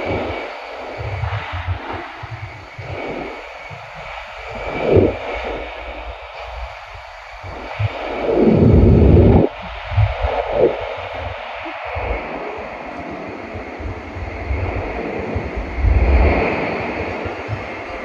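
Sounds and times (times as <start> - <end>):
train running rumble and hiss: 0.0 - 18.0.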